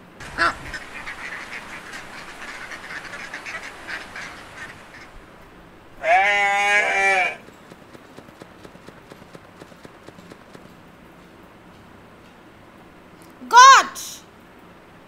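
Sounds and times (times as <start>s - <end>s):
duck quacking: 0.2s - 5.1s
goat bleating: 6.0s - 7.4s.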